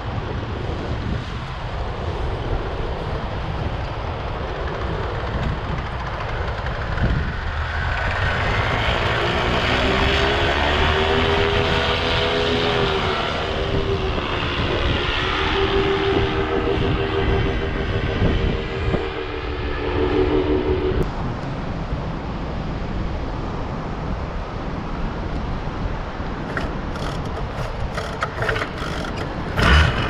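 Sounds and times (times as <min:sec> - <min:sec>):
wind noise on microphone: 0:00.0 - 0:30.0
paramotor engine running: 0:03.2 - 0:21.0, 0:26.5 - 0:30.0.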